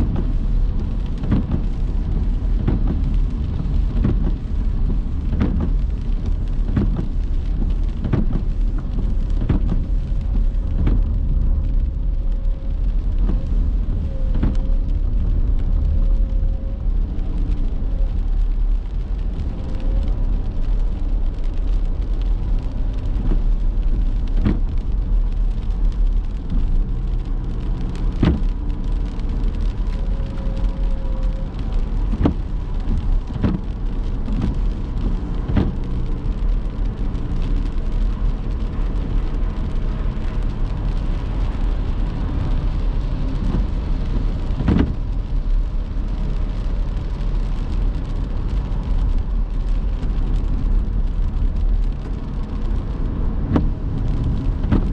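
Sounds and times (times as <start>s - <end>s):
car engine and road rumble: 0.0s - 54.9s
rain and wet tyres hissing: 0.0s - 54.9s.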